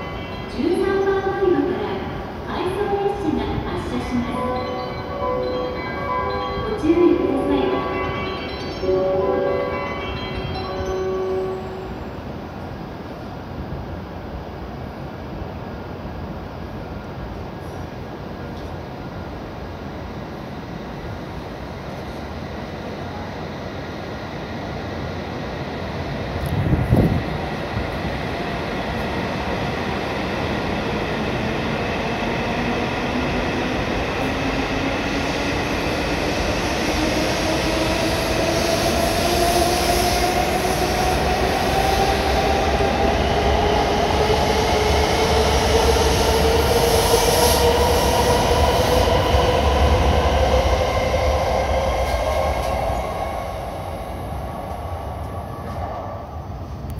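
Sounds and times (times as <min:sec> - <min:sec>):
train wheels rumbling on rail: 0:15.4 - 0:56.9.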